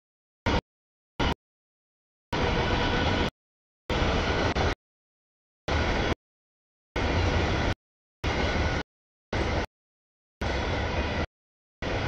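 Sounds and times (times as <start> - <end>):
freight train rumble: 2.4 - 3.3, 3.9 - 4.8, 5.7 - 6.2, 7.0 - 8.8, 9.4 - 9.7, 10.4 - 12.0.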